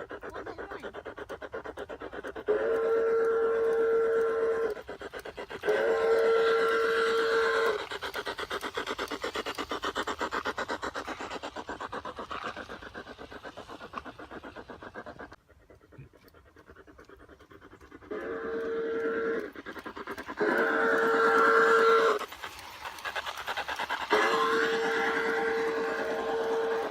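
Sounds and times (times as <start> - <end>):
steam locomotive chuffing: 0.0 - 26.9
steam locomotive whistle: 2.5 - 4.9, 5.6 - 8.0, 18.1 - 19.6, 20.4 - 22.2, 24.0 - 26.9.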